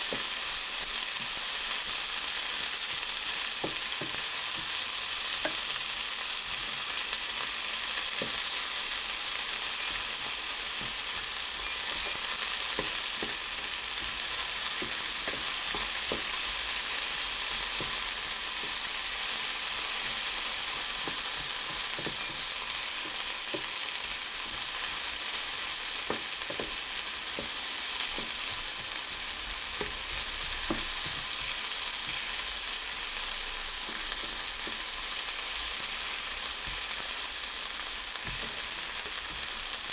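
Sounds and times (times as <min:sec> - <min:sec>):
food sizzling in a frying pan: 0:00.0 - 0:39.9
utensil tapping and scraping: 0:10.8 - 0:16.6, 0:17.6 - 0:18.9, 0:20.9 - 0:23.8, 0:26.0 - 0:28.9, 0:29.8 - 0:32.4, 0:33.8 - 0:35.0, 0:38.2 - 0:39.6.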